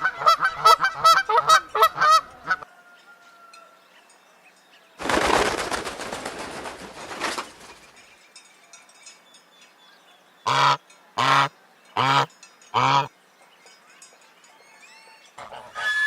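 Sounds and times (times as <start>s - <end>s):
goose honking: 0.0s - 2.6s, 10.5s - 13.1s.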